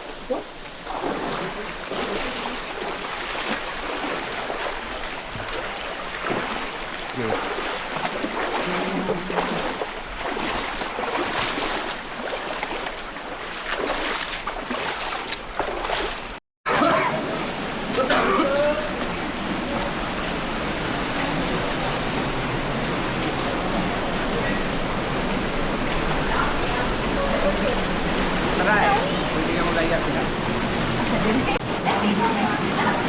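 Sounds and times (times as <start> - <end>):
water splashing: 0.0 - 33.0
waterfall rushing: 16.7 - 33.0.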